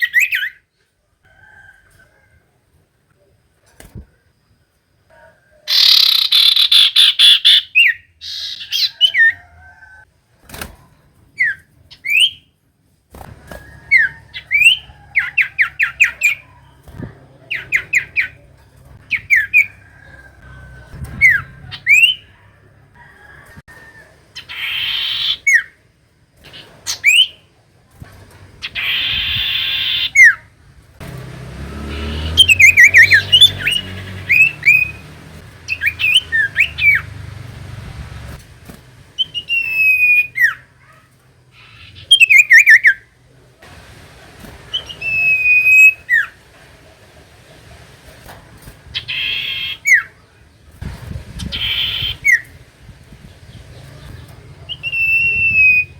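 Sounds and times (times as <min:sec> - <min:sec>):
harsh rasping bird calls: 0:05.6 - 0:09.9, 0:13.5 - 0:23.0, 0:24.3 - 0:25.8, 0:28.6 - 0:38.4, 0:39.0 - 0:43.2, 0:44.6 - 0:46.5, 0:48.8 - 0:55.9
bird whistling and trilling: 0:11.4 - 0:12.5, 0:39.2 - 0:40.6, 0:41.7 - 0:43.0, 0:51.5 - 0:52.4, 0:54.7 - 0:55.9.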